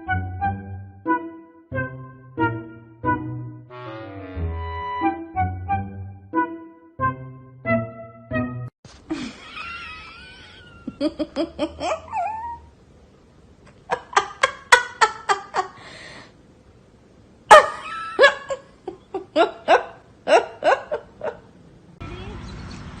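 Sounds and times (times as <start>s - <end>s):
person laughing: 9.1s - 12.7s, 13.7s - 15.9s, 17.5s - 21.5s.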